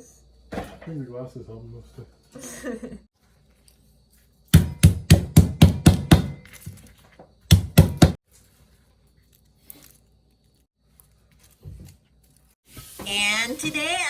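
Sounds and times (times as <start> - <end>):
knife chopping on cutting board: 4.6 - 6.4, 7.5 - 8.2.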